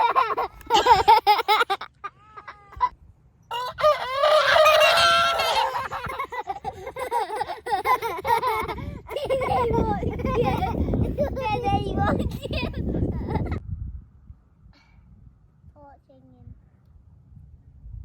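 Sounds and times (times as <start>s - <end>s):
rooster crowing: 3.5s - 6.2s.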